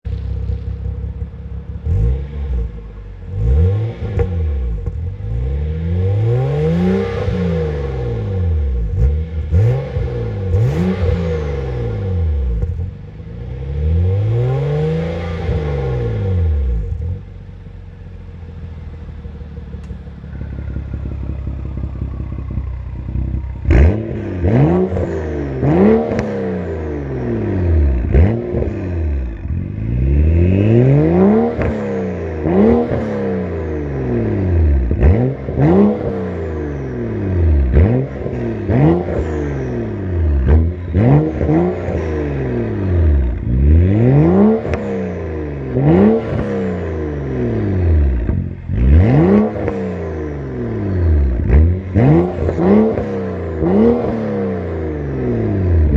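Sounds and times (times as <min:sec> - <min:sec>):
car engine idling: 0:00.0 - 0:24.9, 0:46.8 - 0:55.9
car engine revving: 0:00.0 - 0:55.9.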